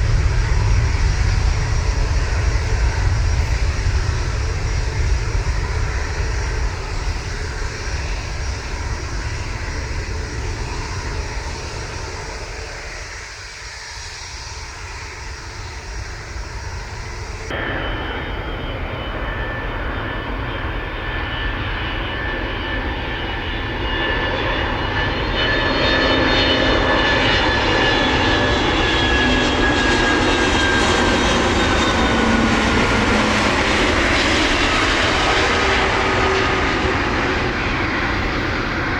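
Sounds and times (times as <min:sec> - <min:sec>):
jet airliner engine roar: 0:00.0 - 0:38.9
jet engine whine: 0:00.0 - 0:38.9.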